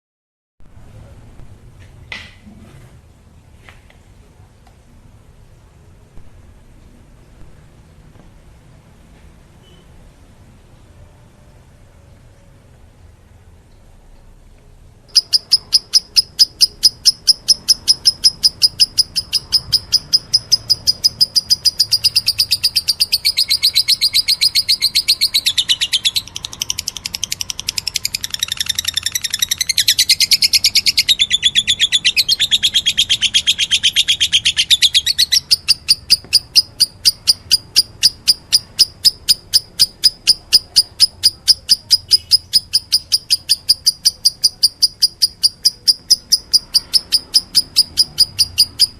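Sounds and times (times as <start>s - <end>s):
lovebird chicks chirping: 15.1s - 48.9s.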